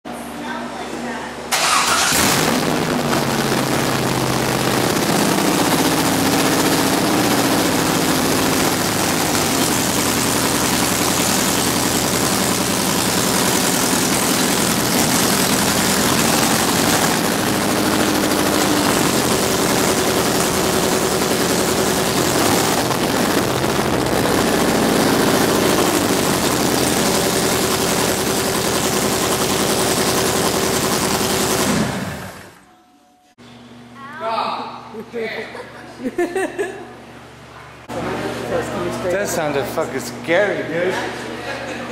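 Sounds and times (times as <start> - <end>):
loud car engine idling: 1.6 - 32.6.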